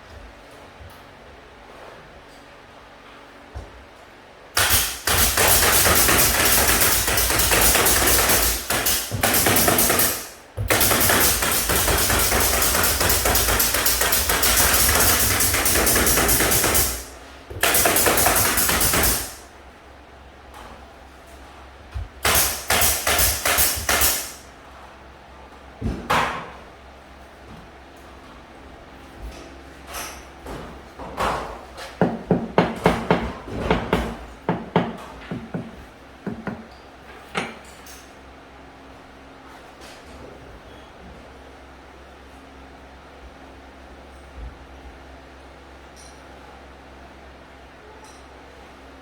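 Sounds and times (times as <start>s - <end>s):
power tool hammering: 4.6s - 19.4s, 22.2s - 24.4s, 32.0s - 36.6s.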